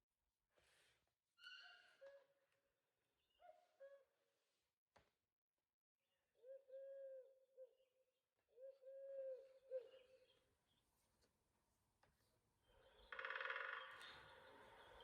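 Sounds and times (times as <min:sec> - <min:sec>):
recorded bird hooting call: 0:06.4 - 0:07.8, 0:08.5 - 0:10.4.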